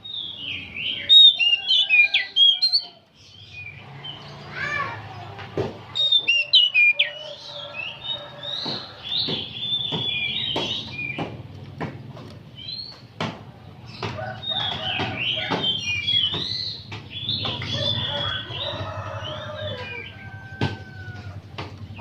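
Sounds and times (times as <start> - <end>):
bird singing chirps and whistles: 0.0 - 3.7, 6.0 - 11.2, 14.4 - 18.7.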